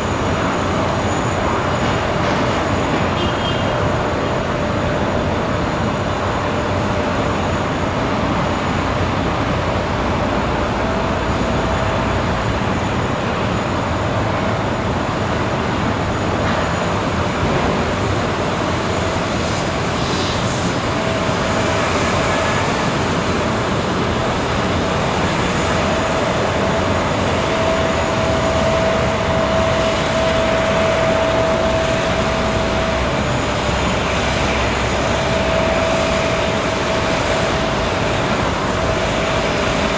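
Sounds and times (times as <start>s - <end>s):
jet engine rush with whine: 0.0s - 39.9s.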